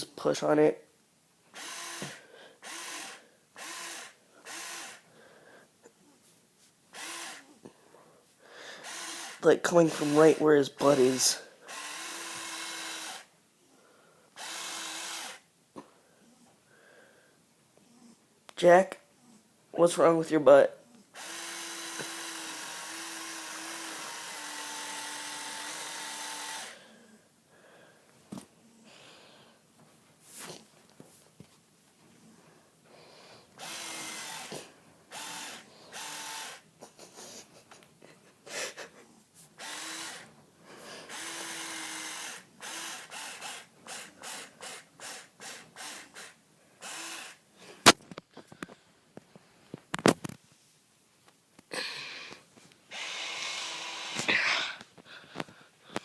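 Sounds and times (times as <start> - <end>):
rasping buzz: 52.9 - 54.8.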